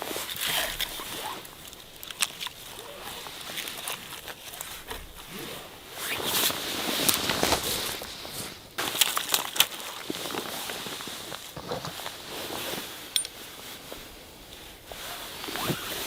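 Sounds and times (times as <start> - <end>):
rustling on forest floor: 0.0 - 16.0
twig clicks: 0.4 - 5.2.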